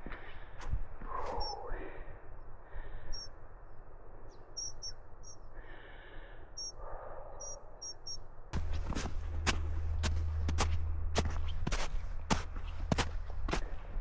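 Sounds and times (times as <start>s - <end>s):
small bird chirping: 1.3s - 1.7s, 3.1s - 3.4s, 4.3s - 5.5s, 6.6s - 8.3s
footsteps crunching in snow: 8.6s - 14.0s
low steady rumble: 8.6s - 14.0s.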